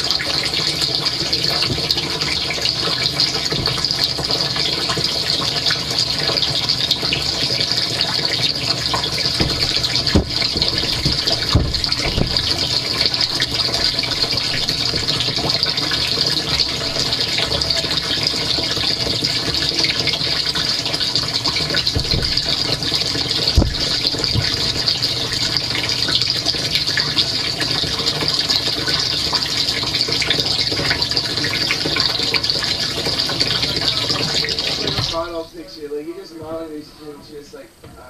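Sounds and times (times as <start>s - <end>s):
dishwasher spraying water: 0.0s - 38.0s
dull knocks: 3.2s - 5.0s, 8.9s - 20.0s, 21.4s - 25.7s.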